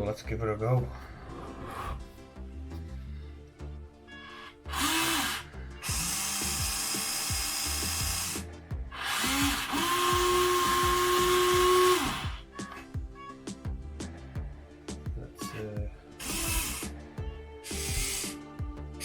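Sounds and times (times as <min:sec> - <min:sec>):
toy excavator rock breaker whining: 0:04.3 - 0:08.4, 0:09.0 - 0:12.4, 0:16.2 - 0:16.9, 0:17.6 - 0:18.4.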